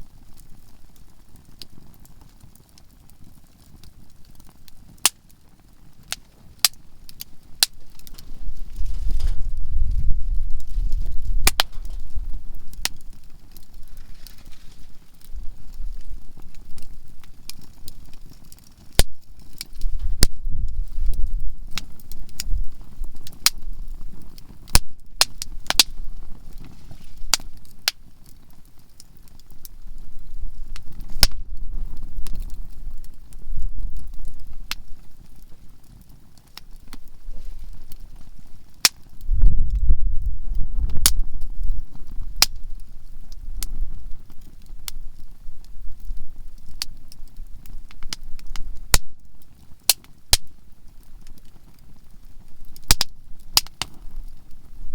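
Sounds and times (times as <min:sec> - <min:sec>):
campfire crackling: 0:00.0 - 0:54.9
low rumble: 0:07.8 - 0:17.2.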